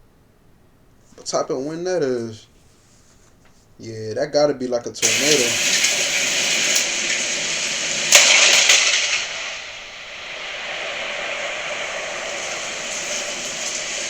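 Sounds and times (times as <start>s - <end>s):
storm wind blowing hard: 7.4s - 14.0s.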